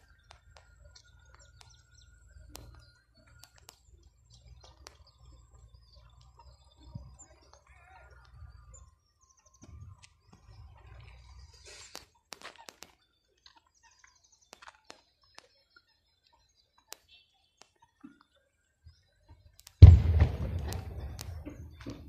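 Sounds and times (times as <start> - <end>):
bird chirps: 0.0 - 22.0
small scattered clicks: 0.0 - 22.0
rumbling burst on microphone: 19.8 - 22.0.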